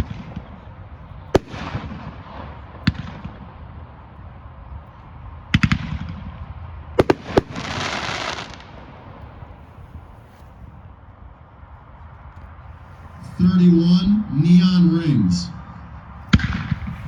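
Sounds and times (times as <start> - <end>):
firework bangs: 0.0 - 0.6, 1.4 - 3.5, 7.0 - 10.4, 16.3 - 17.0
firework crackling hiss: 7.0 - 8.8.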